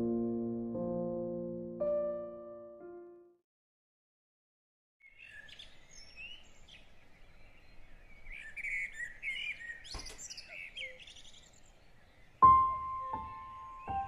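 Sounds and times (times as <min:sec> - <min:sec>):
small birds chirping: 0:05.0 - 0:14.0.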